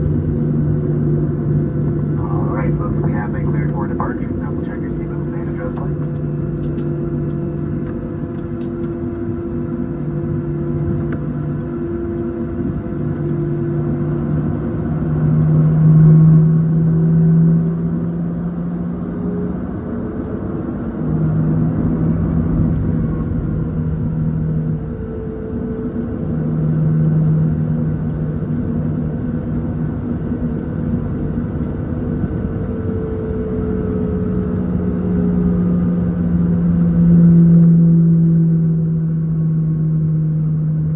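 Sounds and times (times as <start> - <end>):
low hums: 0.0 - 9.1
jet engines droning in cabin: 0.0 - 40.9.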